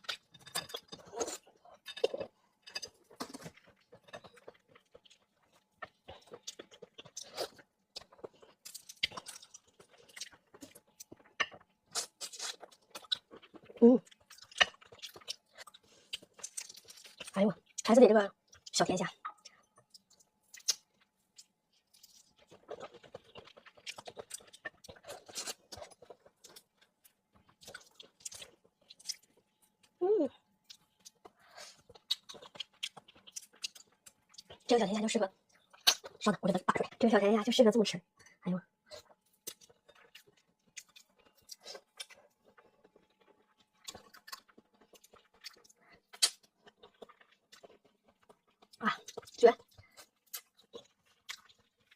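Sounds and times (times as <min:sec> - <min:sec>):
person chewing food: 0:00.0 - 0:34.8, 0:35.4 - 0:37.0, 0:38.8 - 0:51.9
wet mouth smacks and clicks: 0:20.0 - 0:20.8.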